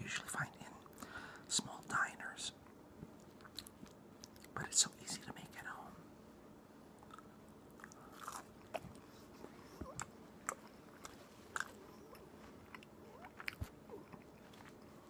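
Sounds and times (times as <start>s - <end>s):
person chewing toasted sandwich: 3.2s - 4.6s, 7.0s - 15.0s.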